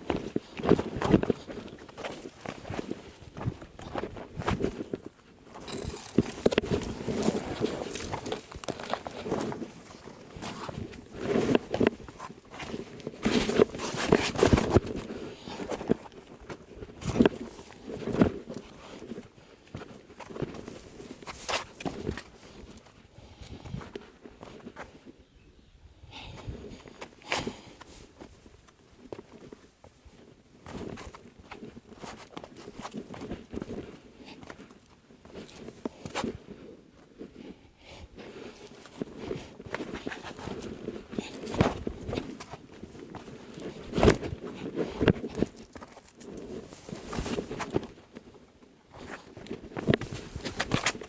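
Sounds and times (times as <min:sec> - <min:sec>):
footsteps on dirt trail: 0:00.0 - 0:25.0, 0:38.2 - 0:51.0.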